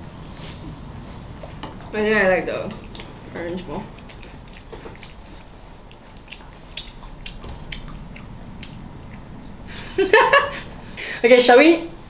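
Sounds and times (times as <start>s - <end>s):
crunchy chewing with mouth clicks: 2.7s - 10.0s.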